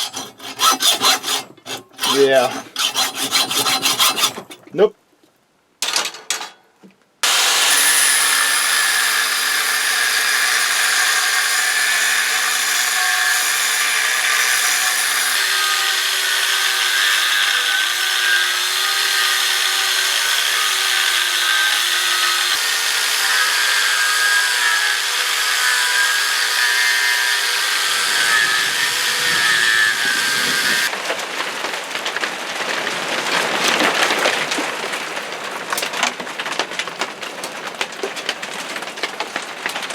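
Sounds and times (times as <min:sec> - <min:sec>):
power tool cutting steel: 0:00.0 - 0:04.6, 0:07.2 - 0:30.9.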